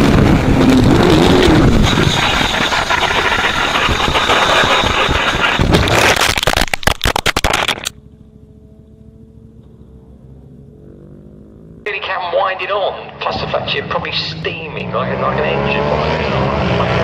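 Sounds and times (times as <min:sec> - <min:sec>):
wind and road noise: 0:00.0 - 0:17.0
vehicle engine idling: 0:07.9 - 0:12.2.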